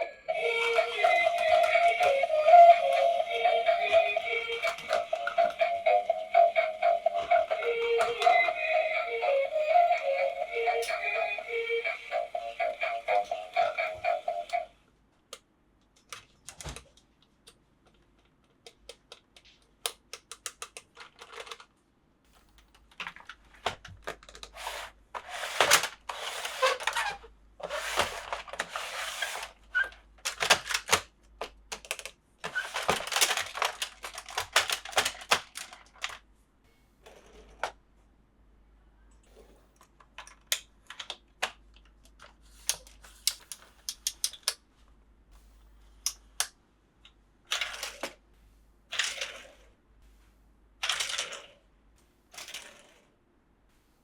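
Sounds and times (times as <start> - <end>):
music: 0.0 - 14.7
plastic clicks and taps: 15.3 - 21.6
packaging rustling and crinkling: 32.5 - 36.1.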